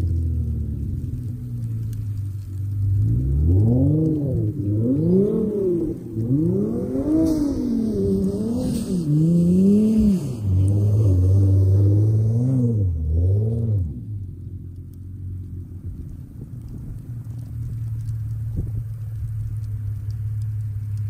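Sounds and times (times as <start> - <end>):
turbocharged car engine revving: 2.4 - 14.6.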